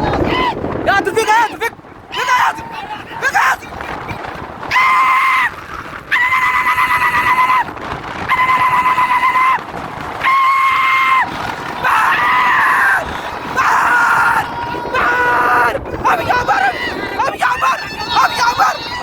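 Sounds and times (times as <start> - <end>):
man shouting high-pitched: 0.0 - 3.8, 15.0 - 19.0.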